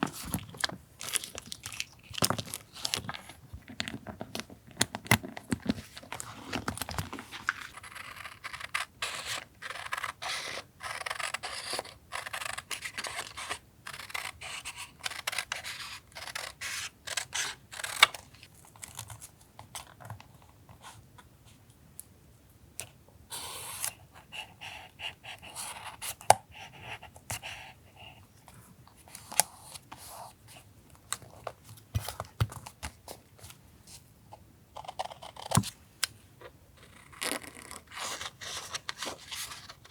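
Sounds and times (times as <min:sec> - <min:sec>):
paper rustling: 0:00.0 - 0:08.2
scissors snipping paper: 0:06.8 - 0:18.2.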